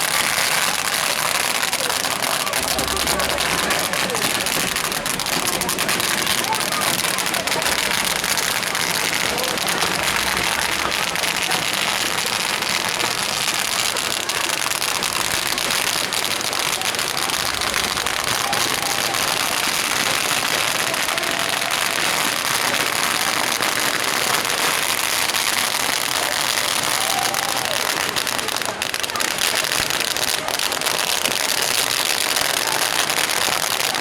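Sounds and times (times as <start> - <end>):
bonfire crackling and popping: 0.0 - 34.0.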